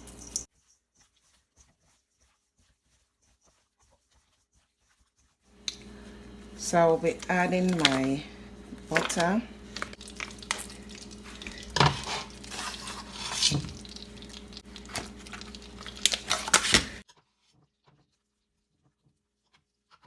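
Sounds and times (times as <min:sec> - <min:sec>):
steady low hum: 0:05.6 - 0:17.0.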